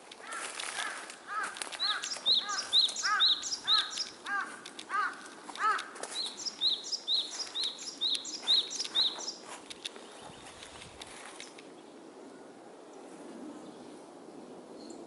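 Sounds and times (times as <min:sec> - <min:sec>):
songbird low full notes: 0:01.3 - 0:05.3
songbird high sharp notes: 0:01.8 - 0:04.4.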